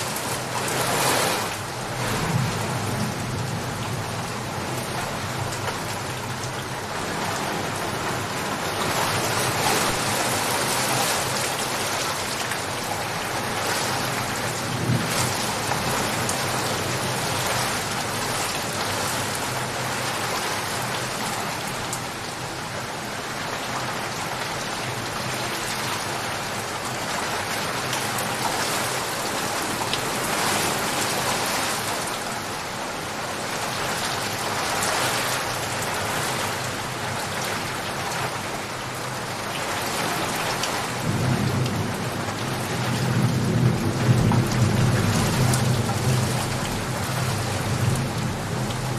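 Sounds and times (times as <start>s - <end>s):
low thunder rumbling: 0.0s - 6.2s, 13.5s - 18.4s, 40.9s - 48.9s
heavy rain falling: 0.0s - 48.9s.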